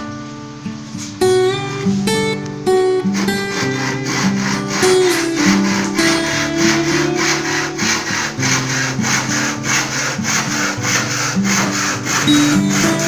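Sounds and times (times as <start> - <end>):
background music with low notes: 0.0 - 13.0
hand saw cutting wood: 3.1 - 13.0.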